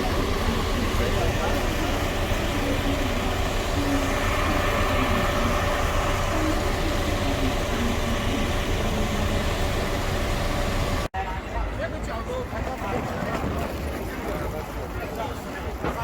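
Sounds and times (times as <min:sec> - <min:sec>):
steady rumbling noise: 0:00.0 - 0:16.0.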